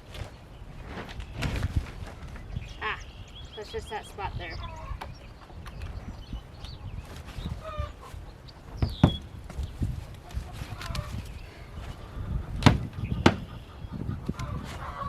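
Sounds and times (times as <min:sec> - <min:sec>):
wind on microphone: 0:00.0 - 0:15.0
chickens clucking: 0:00.1 - 0:15.0
sharp knocks: 0:08.8 - 0:09.2, 0:12.6 - 0:13.5.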